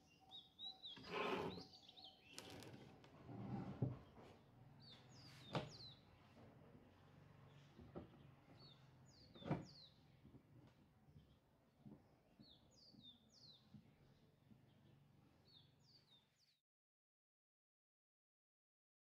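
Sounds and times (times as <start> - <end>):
faint bird chirping: 0.0 - 2.8.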